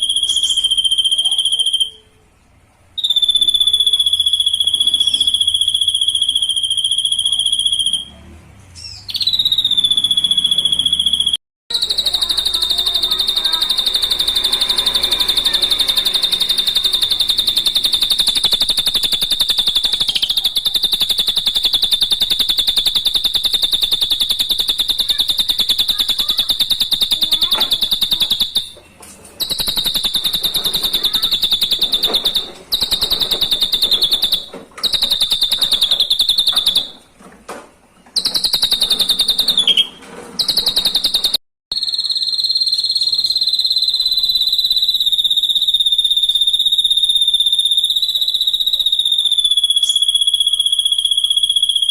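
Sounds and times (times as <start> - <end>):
high pulsed trill: 0.0 - 2.0, 9.2 - 28.8, 29.4 - 37.0.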